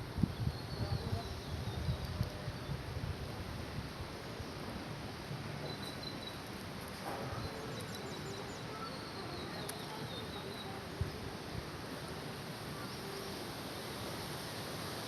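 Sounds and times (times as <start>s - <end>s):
steady outdoor hiss: 0.0s - 15.0s
faint high bird chirps: 7.3s - 10.9s.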